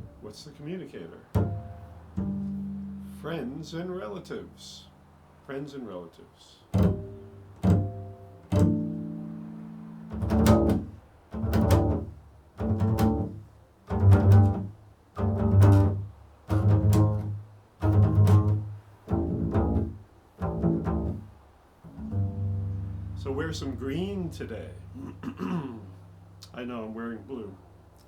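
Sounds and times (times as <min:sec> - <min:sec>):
low plucked string instrument: 0:01.3 - 0:05.3, 0:06.7 - 0:26.9.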